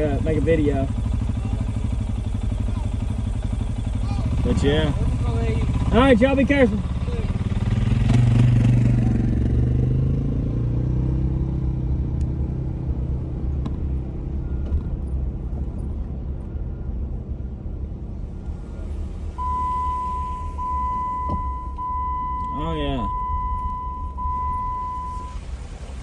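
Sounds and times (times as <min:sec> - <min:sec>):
vehicle engine rumbling: 0:00.0 - 0:26.0
steady high-pitched tone: 0:19.4 - 0:25.4.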